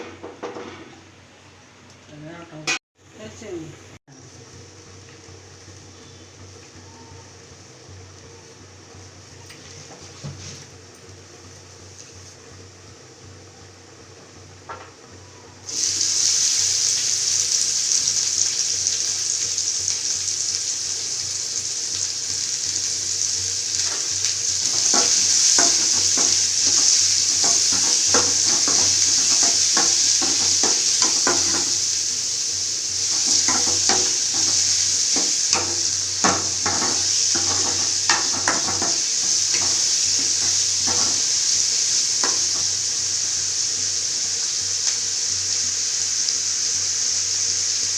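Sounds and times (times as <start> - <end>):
food sizzling in hot oil: 3.0 - 47.9
spoon scraping and tapping pan: 23.8 - 31.9, 33.0 - 41.4.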